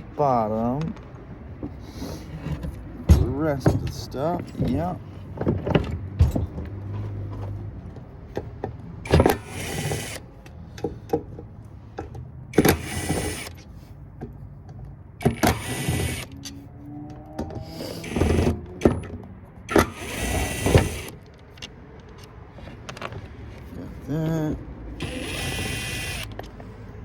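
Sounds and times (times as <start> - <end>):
clicks and knocks of parts: 0.7 - 23.7, 25.0 - 26.8
cordless power driver running: 9.1 - 10.2, 12.6 - 13.6, 15.2 - 16.4, 17.7 - 19.1, 19.7 - 21.2, 25.0 - 26.5.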